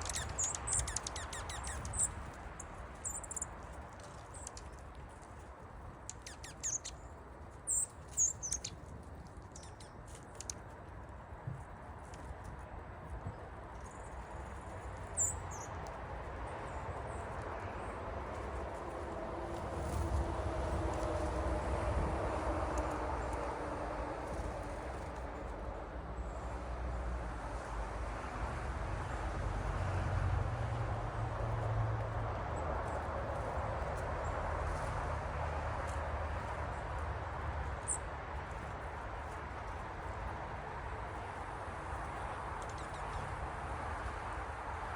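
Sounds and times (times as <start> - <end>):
faint high bird chirps: 0.0 - 2.2, 6.1 - 7.1, 7.7 - 8.8
birds chirping: 0.0 - 4.8, 6.1 - 8.8, 9.4 - 10.5, 15.0 - 15.8.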